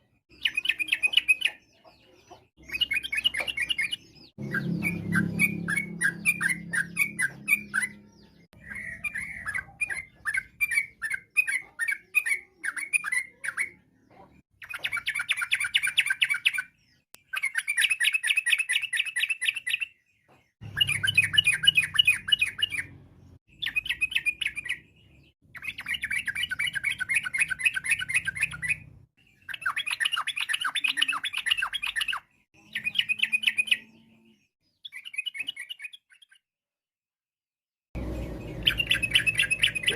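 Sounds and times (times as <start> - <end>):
bird chirping and chattering: 0.3 - 36.5, 38.0 - 39.9.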